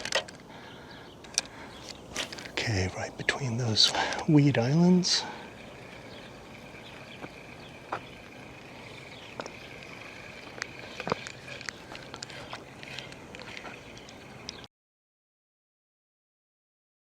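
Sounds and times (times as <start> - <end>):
faint steady high hum: 0.0 - 14.7
fishing tackle clicks: 7.9 - 14.6.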